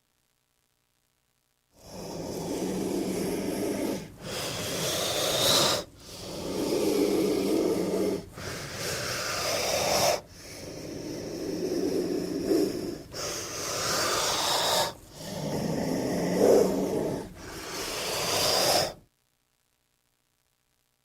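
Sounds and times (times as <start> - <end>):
snake hissing: 1.8 - 19.0.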